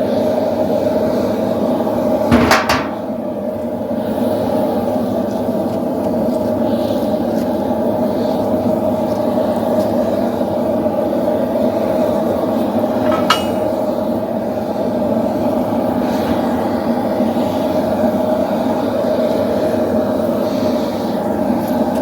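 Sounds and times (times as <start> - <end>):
metallic clink: 13.0 - 13.8.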